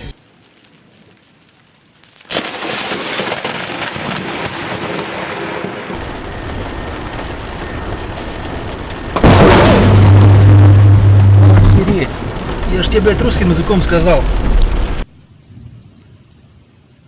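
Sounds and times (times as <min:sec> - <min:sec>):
rushing rain: 0:00.0 - 0:16.2
thunder: 0:02.3 - 0:16.0
loud sound with low hum: 0:09.2 - 0:12.6.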